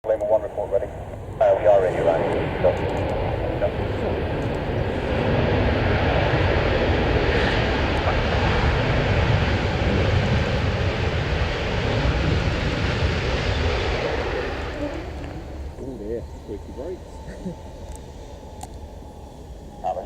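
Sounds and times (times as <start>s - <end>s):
jet engines rushing: 0.0s - 20.0s.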